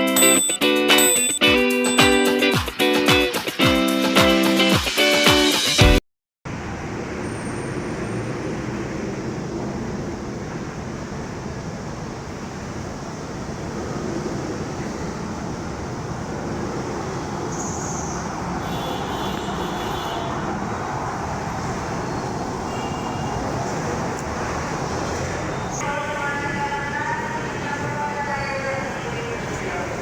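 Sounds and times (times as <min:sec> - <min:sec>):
faint high tones: 0:00.0 - 0:02.4
light-rail train rumbling: 0:06.5 - 0:30.0.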